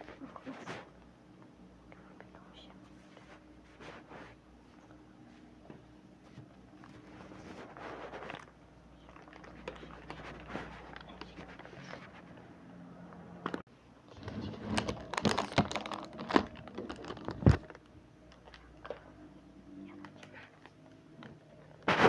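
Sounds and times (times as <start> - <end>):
food packaging rustling and clicking: 6.7 - 12.4, 13.4 - 19.1.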